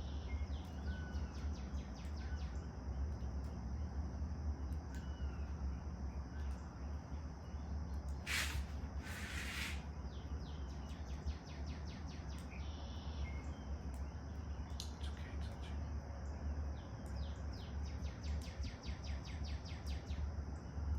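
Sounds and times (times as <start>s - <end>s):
high-pitched hiss: 8.3s - 9.8s
short rushing noises: 8.3s - 9.8s
small birds chirping: 8.3s - 9.8s.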